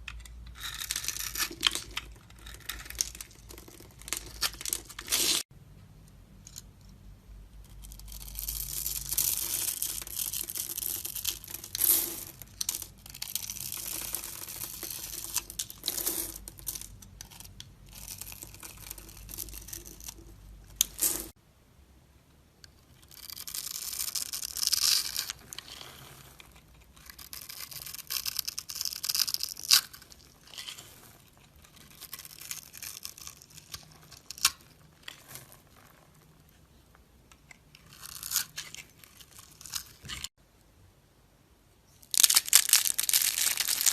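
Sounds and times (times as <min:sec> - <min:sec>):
knife scraping soap: 0:00.0 - 0:05.4, 0:22.9 - 0:36.5.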